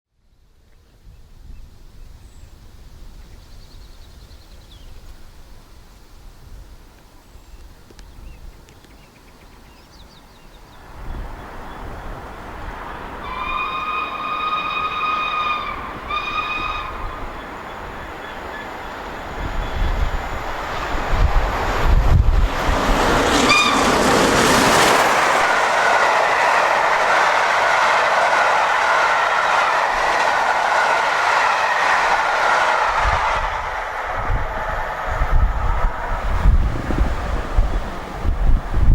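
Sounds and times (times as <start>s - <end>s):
train rushing and rattling past: 10.8s - 38.9s
steam locomotive whistle: 13.2s - 20.5s, 23.3s - 36.2s.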